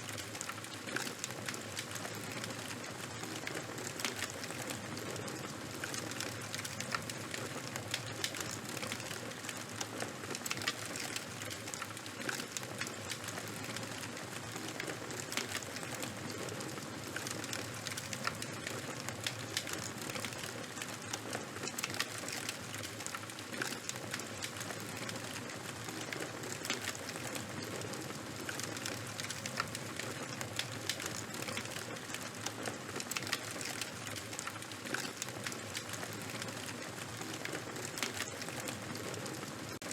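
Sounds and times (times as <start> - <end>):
charcoal fire crackling: 0.0 - 39.9.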